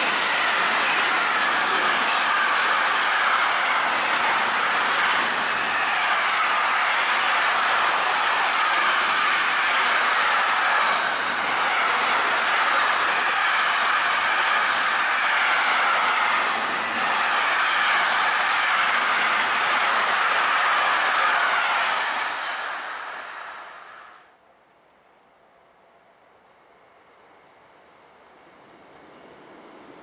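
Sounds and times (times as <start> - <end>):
train wheels rolling on rails: 0.0 - 23.2.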